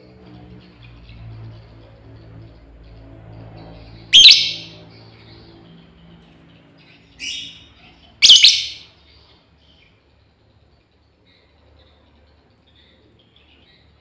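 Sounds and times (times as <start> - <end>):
lovebird screeching: 4.1 - 4.8, 7.2 - 7.6, 8.2 - 8.8.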